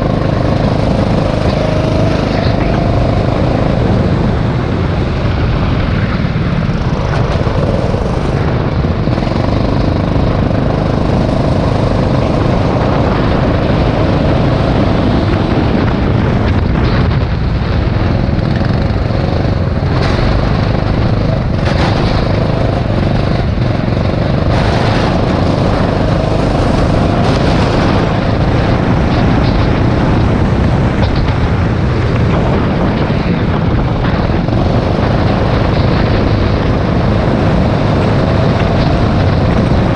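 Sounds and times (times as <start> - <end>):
constant rushing noise: 0.0 - 39.9
go-kart engine running: 0.0 - 39.9.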